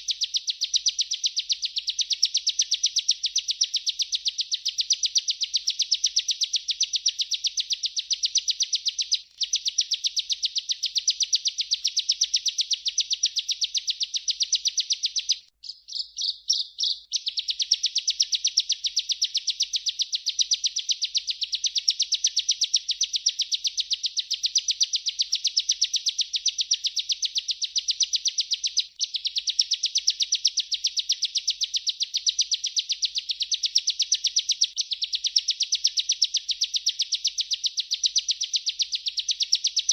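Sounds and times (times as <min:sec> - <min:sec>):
bird singing rapid high notes: 0:13.9 - 0:19.0.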